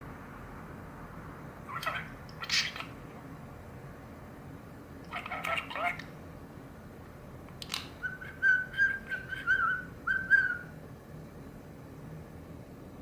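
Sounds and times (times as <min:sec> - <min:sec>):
budgerigar whistling: 0:08.0 - 0:10.8.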